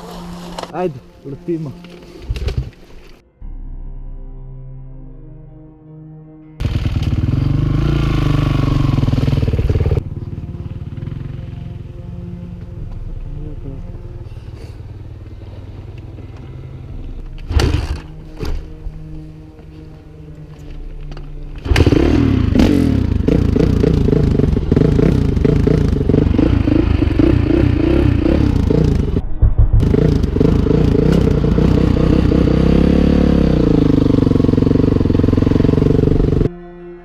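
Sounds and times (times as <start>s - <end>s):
dirt bike engine revving: 6.6s - 11.7s, 21.6s - 29.2s, 29.8s - 36.5s.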